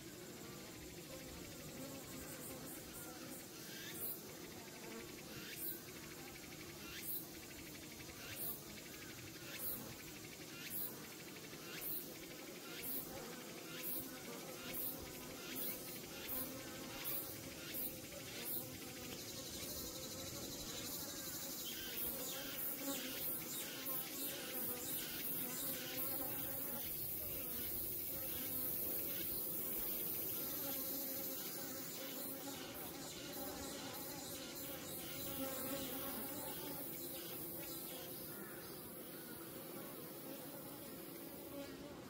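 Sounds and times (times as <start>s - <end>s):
high pulsing insect chirp: 0.0s - 41.7s
bees buzzing: 14.0s - 42.0s.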